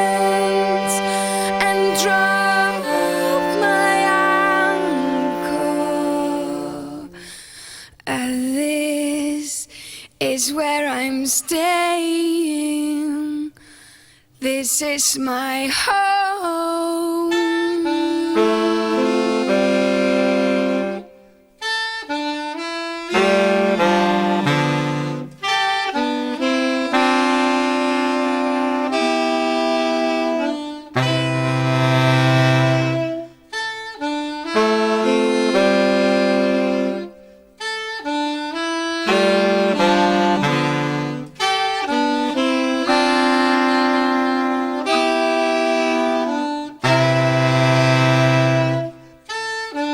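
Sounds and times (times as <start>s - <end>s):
saxophone ensemble playing chords: 0.0s - 7.2s, 17.3s - 49.9s.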